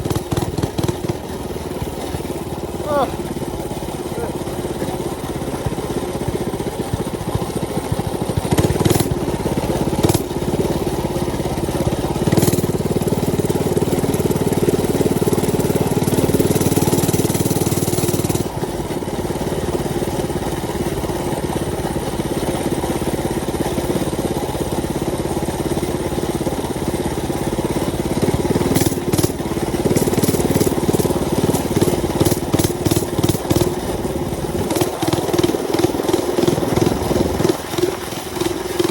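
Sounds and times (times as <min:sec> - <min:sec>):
mini bike engine running: 0:00.0 - 0:38.9.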